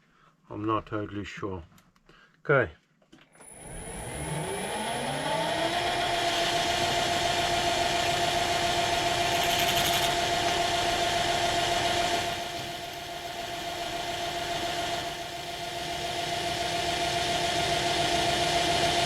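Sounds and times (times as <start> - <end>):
electric motor spinning up: 3.4 - 19.0.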